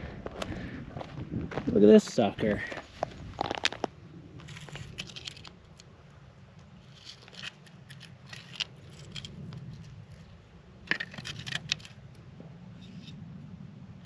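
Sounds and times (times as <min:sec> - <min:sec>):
bone clicking and scraping: 0:03.4 - 0:05.9, 0:06.8 - 0:12.0.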